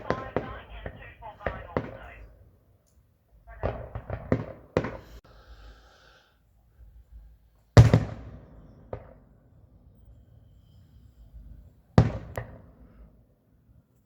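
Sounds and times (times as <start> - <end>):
fireworks bangs: 0.0 - 2.3, 3.5 - 5.2.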